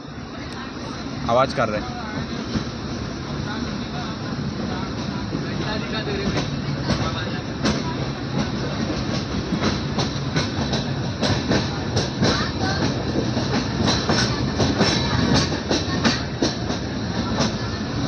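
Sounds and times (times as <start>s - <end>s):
train rumble: 0.0s - 18.0s.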